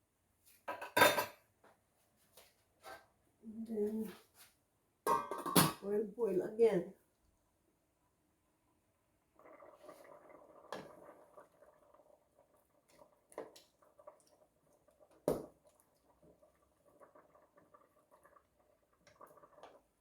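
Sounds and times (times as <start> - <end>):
pot bubbling on stove: 8.1 - 20.0.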